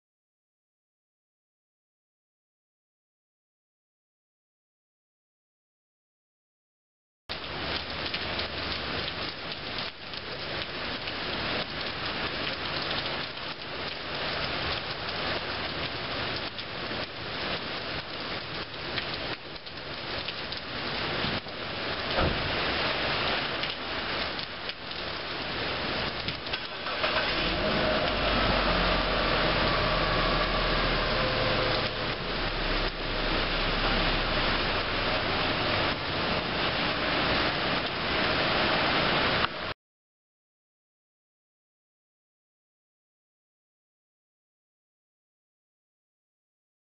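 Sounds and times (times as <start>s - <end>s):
rain pouring off roof: 7.3s - 39.8s
low hum: 27.8s - 37.0s.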